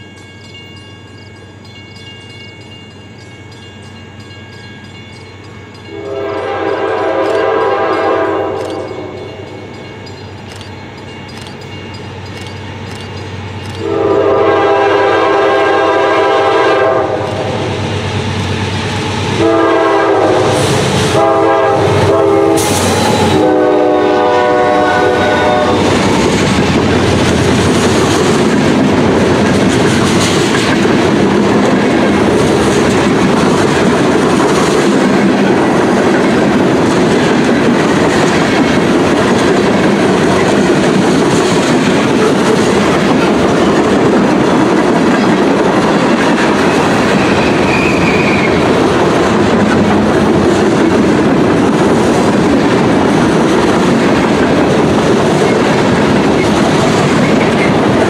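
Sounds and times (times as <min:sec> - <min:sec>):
train rumbling past: 0:00.0 - 0:58.0
locomotive air horn blasts: 0:05.9 - 0:09.2, 0:13.8 - 0:17.6, 0:19.4 - 0:26.0
wheels clacking over rail joints: 0:25.9 - 0:58.0.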